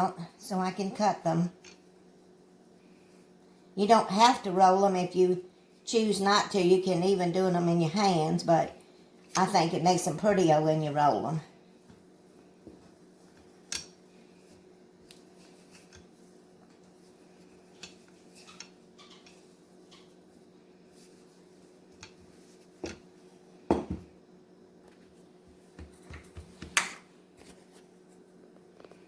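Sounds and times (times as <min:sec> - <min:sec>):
faint steady hum: 0:00.0 - 0:29.0
utensils knocking on counter: 0:23.7 - 0:24.1.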